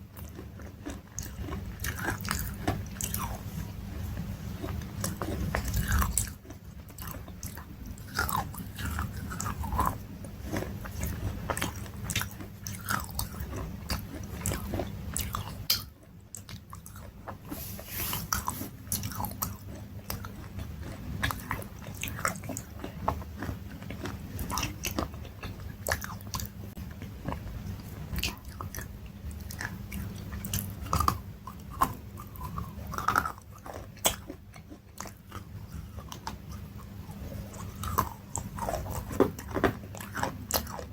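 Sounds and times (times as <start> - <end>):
crunchy chewing of food: 0.0 - 40.9.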